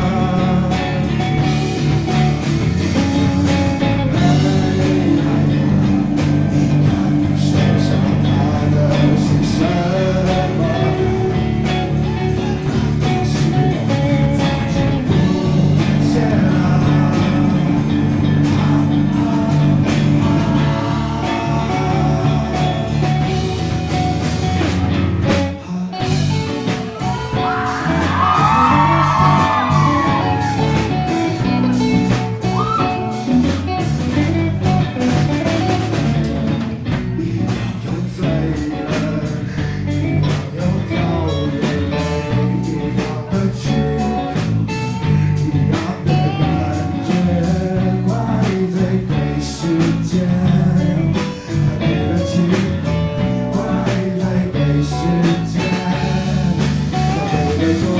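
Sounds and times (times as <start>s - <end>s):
person singing: 0.0s - 24.7s, 25.3s - 57.9s
drum kit beat: 0.0s - 57.9s
guitar: 0.0s - 57.9s.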